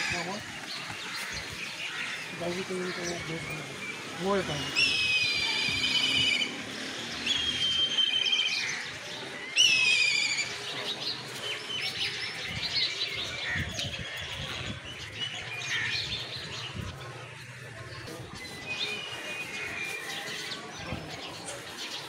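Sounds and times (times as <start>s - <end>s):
birds chirping: 0.0s - 22.0s
bird whistled trill: 7.2s - 8.6s.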